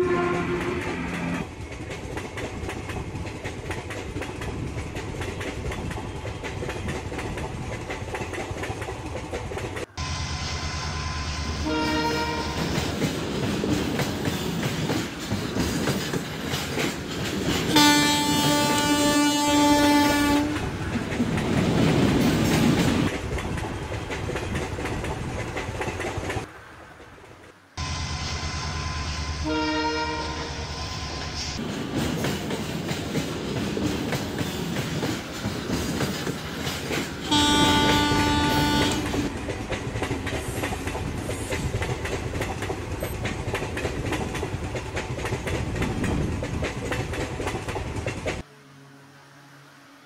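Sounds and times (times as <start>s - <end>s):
train horn: 0.0s - 1.4s, 10.0s - 12.8s, 17.7s - 20.7s, 27.8s - 31.1s, 37.2s - 39.3s
train clickety-clack on rails: 0.0s - 48.5s.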